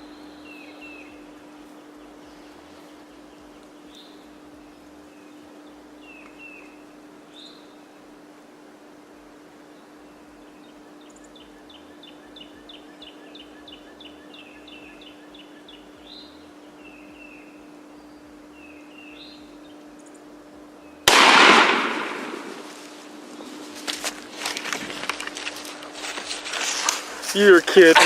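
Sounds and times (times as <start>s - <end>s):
loud shotgun blast echoing: 21.1s - 22.7s.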